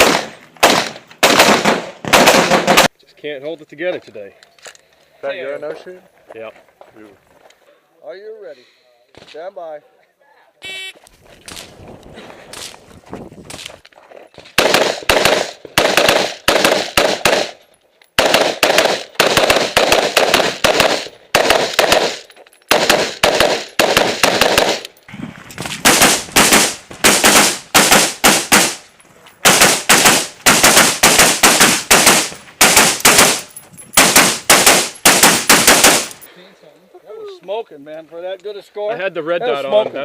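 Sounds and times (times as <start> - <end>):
rifle firing rapid shots: 0.0 - 2.9, 14.6 - 17.6, 18.2 - 24.8, 25.8 - 28.8, 29.4 - 36.2.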